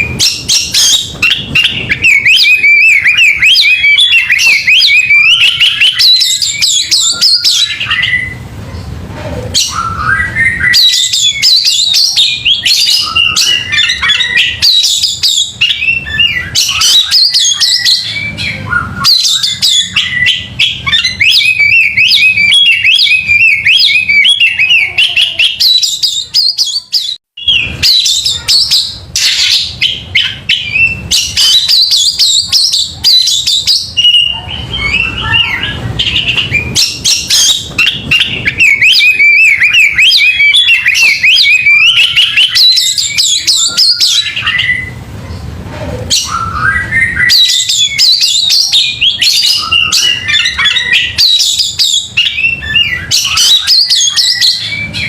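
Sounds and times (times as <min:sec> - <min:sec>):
bird singing chirps and trills: 0:00.0 - 0:45.5, 0:46.1 - 0:55.0.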